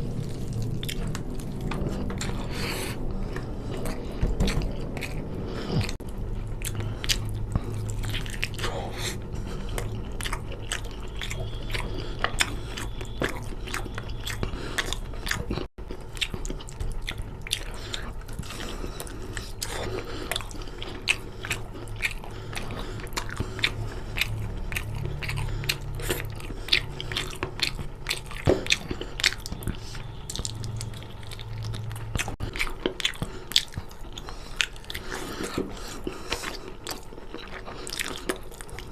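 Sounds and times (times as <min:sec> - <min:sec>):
close chewing with wet mouth clicks: 0:00.0 - 0:38.9.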